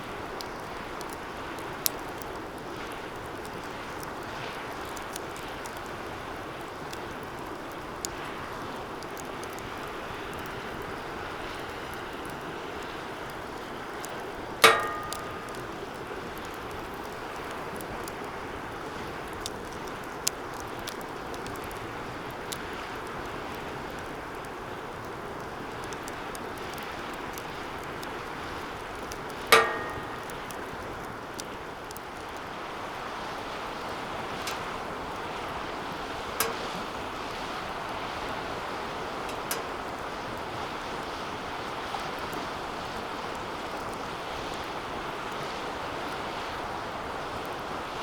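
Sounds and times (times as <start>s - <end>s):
wood fire crackling: 0.0s - 48.0s
metal fire pit clanking: 14.4s - 18.1s, 28.9s - 32.3s, 33.8s - 40.4s.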